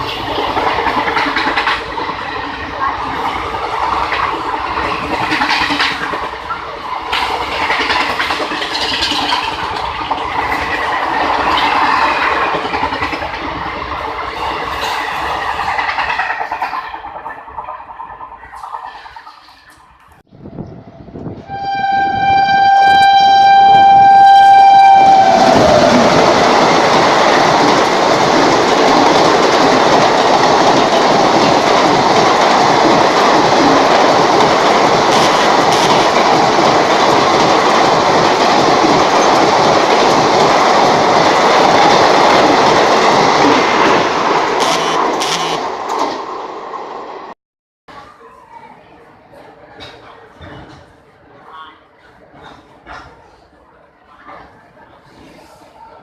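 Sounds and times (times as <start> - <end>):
fast train rushing and clattering: 0.0 - 47.4, 52.0 - 53.2
train horn: 21.4 - 25.5, 44.6 - 45.6.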